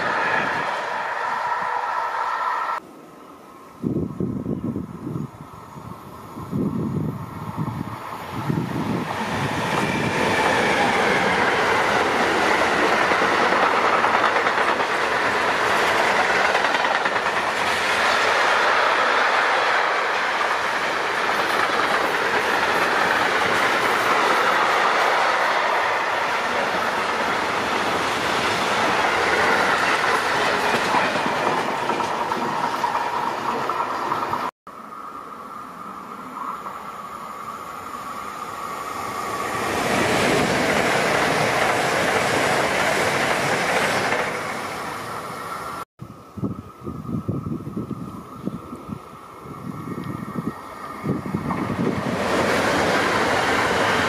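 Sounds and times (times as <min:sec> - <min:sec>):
freight train wheels clattering on rails: 0:08.9 - 0:34.5, 0:39.4 - 0:44.8.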